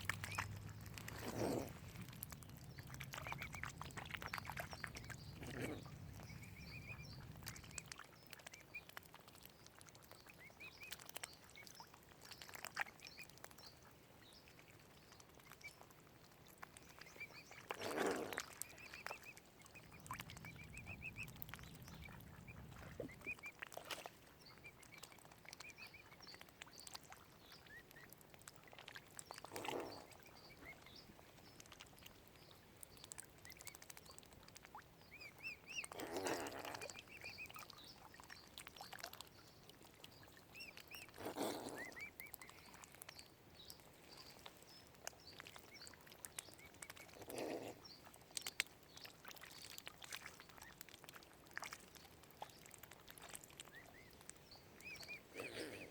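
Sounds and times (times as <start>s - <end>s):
waterfowl low calls: 0.0s - 7.8s, 35.4s - 37.6s, 40.7s - 42.6s, 54.8s - 55.9s
faint high peeping and chirping: 0.0s - 15.9s, 16.6s - 28.2s, 29.2s - 50.8s, 51.6s - 55.9s.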